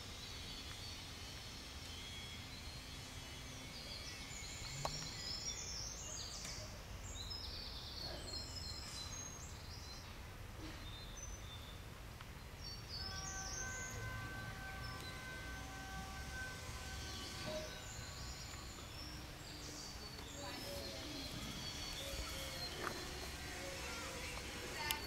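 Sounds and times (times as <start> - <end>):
small birds chirping: 0.0 - 25.0
steady multi-tone hum: 0.0 - 25.0
low outdoor rumble: 10.1 - 25.0.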